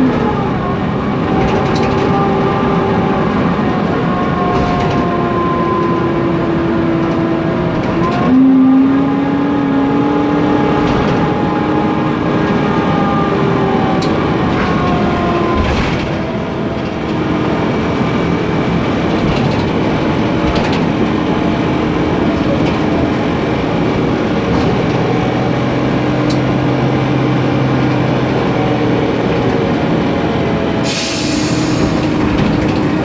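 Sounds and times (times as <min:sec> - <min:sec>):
bus engine running: 0:00.0 - 0:33.0
compressed air hiss: 0:30.9 - 0:32.2.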